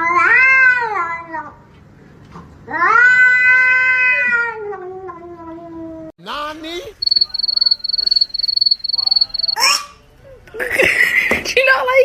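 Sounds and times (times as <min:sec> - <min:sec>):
cat yowling: 0:02.7 - 0:06.1.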